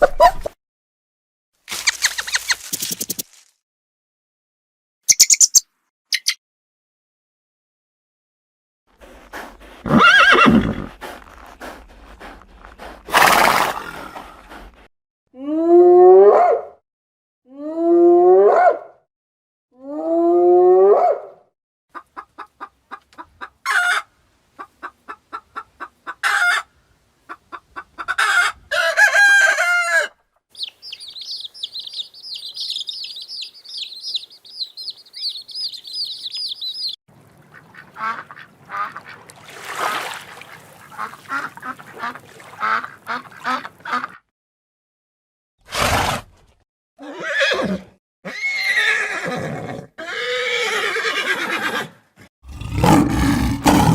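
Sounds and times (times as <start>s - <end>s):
high chirping: 5.1s - 6.4s, 30.6s - 37.0s
animal calls: 30.6s - 37.0s
animal chattering: 30.6s - 37.0s.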